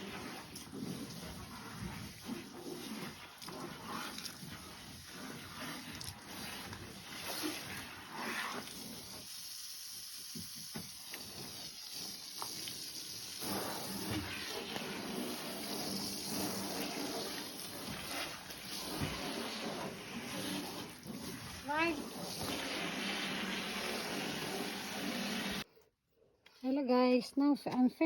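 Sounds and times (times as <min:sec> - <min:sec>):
water spraying off a car: 0:00.0 - 0:25.6.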